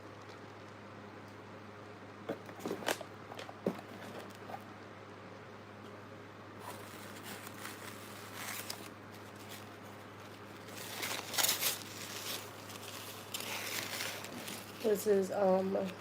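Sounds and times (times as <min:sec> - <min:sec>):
food packaging rustling: 0:06.6 - 0:16.0.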